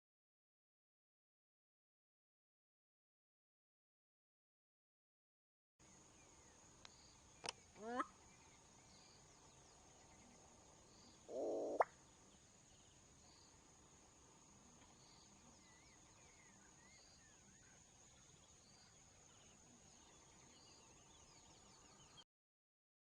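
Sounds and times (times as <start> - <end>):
faint bird chirps: 5.8 - 22.2.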